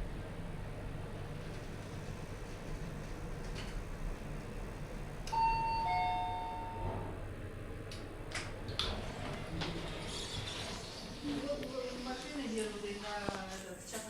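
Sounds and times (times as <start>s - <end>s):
low steady hum: 0.0s - 13.8s
lift chime ding-dong: 5.3s - 7.0s.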